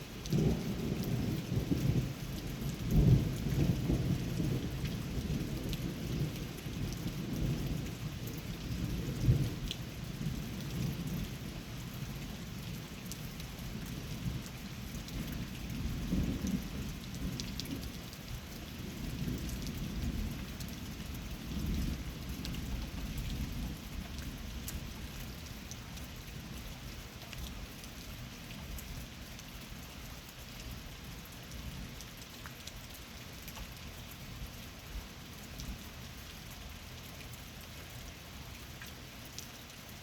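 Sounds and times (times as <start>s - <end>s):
steady rain: 0.0s - 40.0s.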